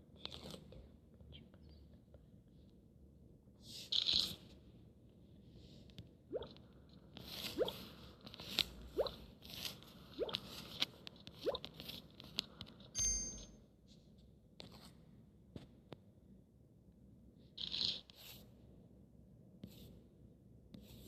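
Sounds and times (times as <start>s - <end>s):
brief chime: 13.0s - 13.5s.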